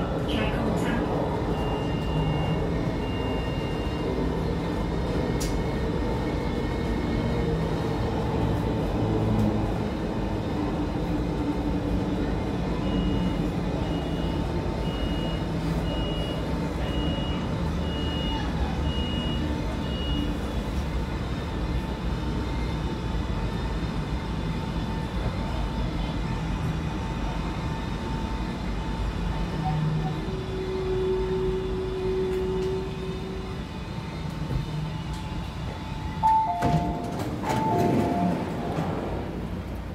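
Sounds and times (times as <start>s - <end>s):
train rumble inside carriage: 0.0s - 39.9s
train motor tone: 30.0s - 35.5s, 36.1s - 39.9s
short high beeps: 36.2s - 38.6s
two-note falling door chime: 36.2s - 38.8s.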